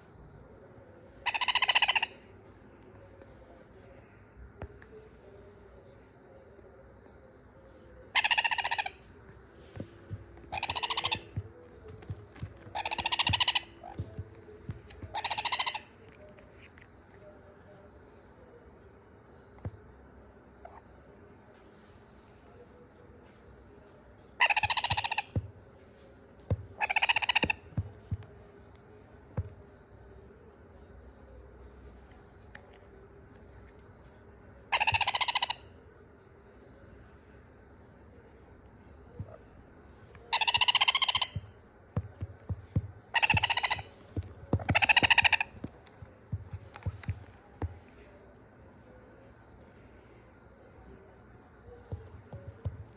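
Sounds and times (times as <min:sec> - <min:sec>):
parrot chick begging calls: 0:01.3 - 0:02.2, 0:08.2 - 0:09.0, 0:09.8 - 0:15.9, 0:24.4 - 0:25.4, 0:26.8 - 0:28.2, 0:34.8 - 0:35.6, 0:40.2 - 0:41.5, 0:42.5 - 0:45.7.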